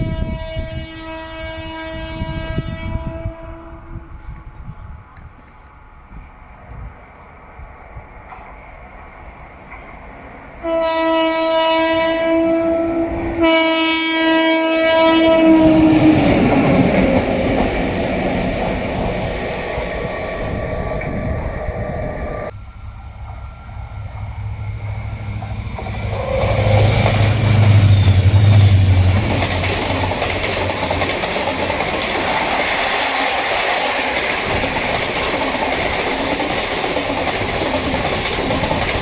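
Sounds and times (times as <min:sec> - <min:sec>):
train horn blasts: 0:00.0 - 0:04.6, 0:10.6 - 0:17.2, 0:24.8 - 0:30.7
passing train rumble and clatter: 0:00.0 - 0:39.0
low hum: 0:19.8 - 0:30.7.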